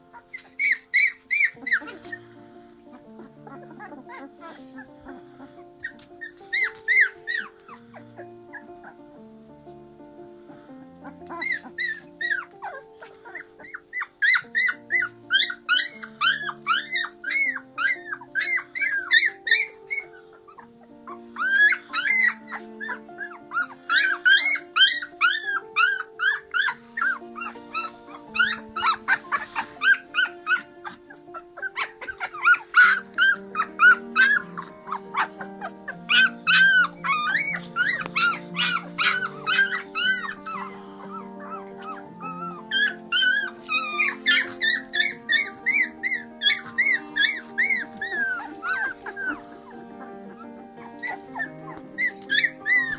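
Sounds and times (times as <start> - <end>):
music with held low notes: 0.0 - 52.9
rapid high-pitched squeaks: 0.2 - 2.6.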